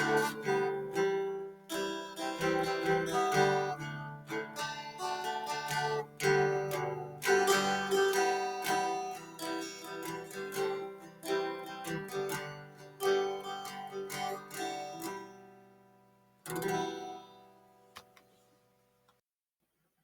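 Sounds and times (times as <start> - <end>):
plucked acoustic guitar: 0.0 - 18.2.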